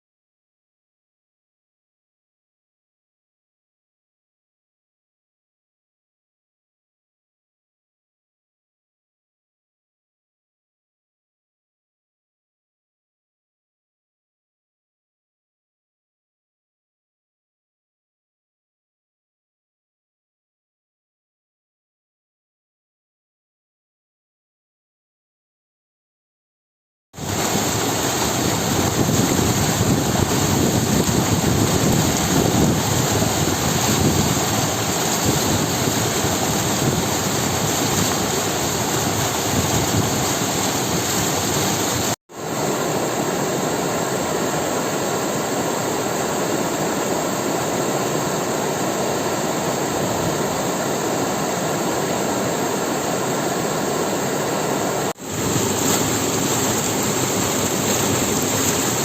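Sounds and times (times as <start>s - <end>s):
water rushing: 27.2s - 59.0s.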